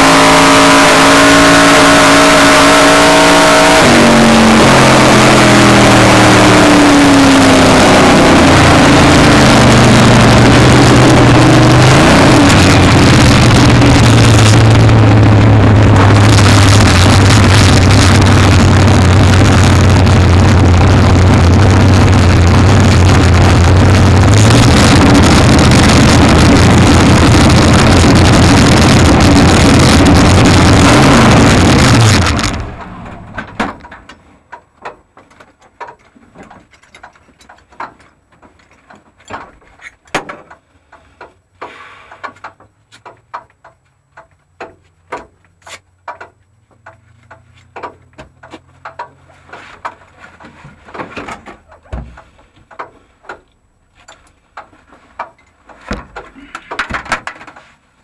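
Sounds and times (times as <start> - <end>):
loud vvee engine running: 0.0 - 34.0
clicks and knocks inside car: 32.8 - 57.8.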